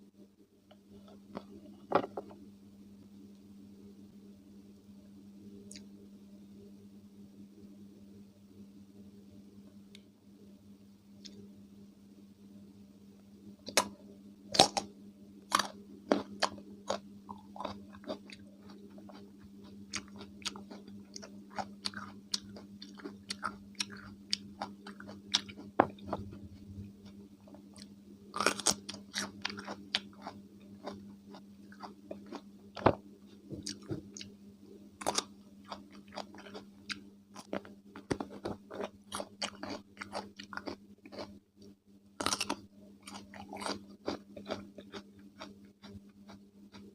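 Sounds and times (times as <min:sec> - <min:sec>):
crunching and chewing cucumber: 0:14.5 - 0:14.9, 0:15.5 - 0:33.0, 0:33.6 - 0:34.3, 0:35.0 - 0:41.4, 0:42.2 - 0:46.9.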